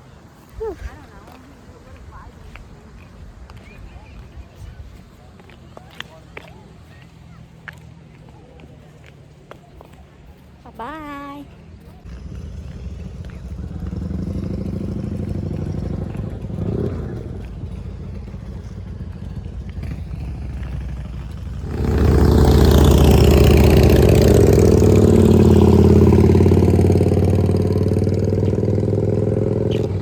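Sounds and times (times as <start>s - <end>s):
vehicle engine droning: 12.0s - 30.0s.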